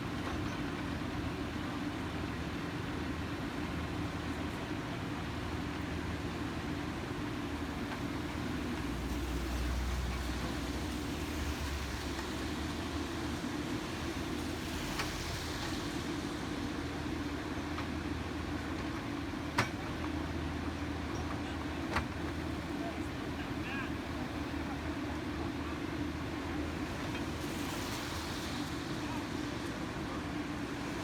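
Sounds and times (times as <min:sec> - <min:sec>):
construction vehicle engine: 0:00.0 - 0:31.0.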